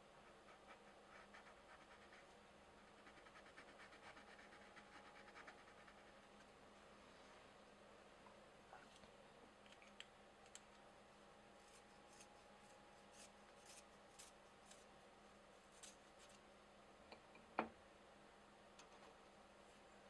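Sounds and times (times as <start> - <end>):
pencils scratching on paper: 0.2 - 6.1, 11.6 - 14.9.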